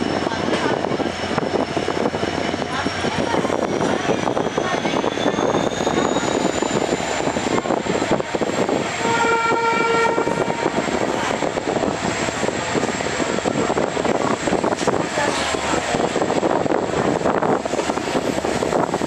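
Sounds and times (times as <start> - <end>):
passenger train rumble and rattle: 0.0 - 19.0
train horn: 9.0 - 10.8.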